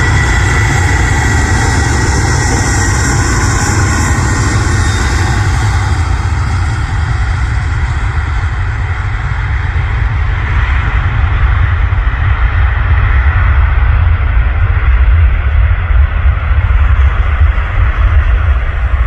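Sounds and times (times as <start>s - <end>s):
jet engines rumbling: 0.0s - 19.0s.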